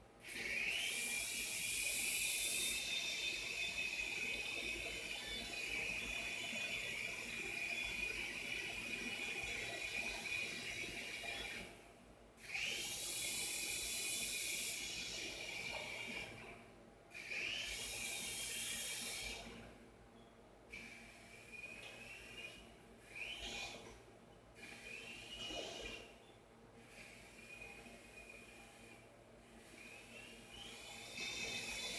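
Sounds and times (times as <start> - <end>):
toy helicopter rotor whine: 0.3 - 11.7, 12.4 - 16.4, 17.2 - 19.6, 23.2 - 23.8, 29.7 - 31.9.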